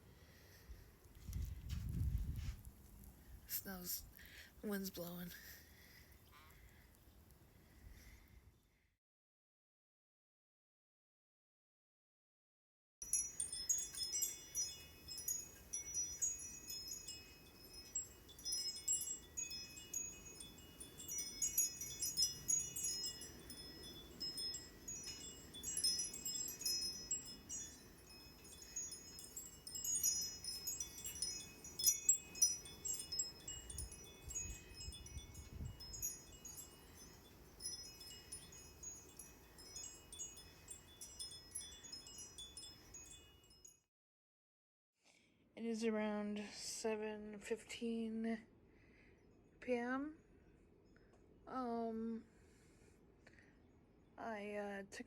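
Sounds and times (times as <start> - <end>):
gusty wind rumble: 1.2 - 2.7
wind chimes jangling: 3.5 - 5.6, 13.0 - 43.7.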